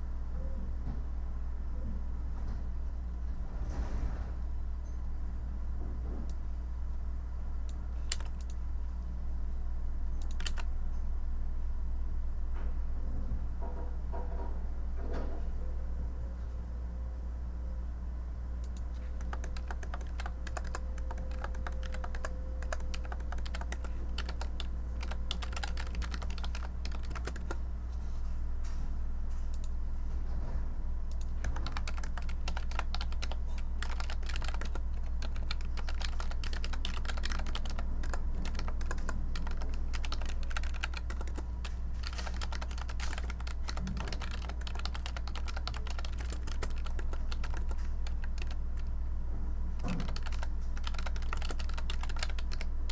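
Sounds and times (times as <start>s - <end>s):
steady low hum: 0.0s - 52.9s
keyboard key clicks: 8.1s - 8.6s, 10.2s - 10.6s, 18.7s - 27.6s, 31.1s - 41.4s, 42.0s - 48.6s, 49.8s - 52.7s.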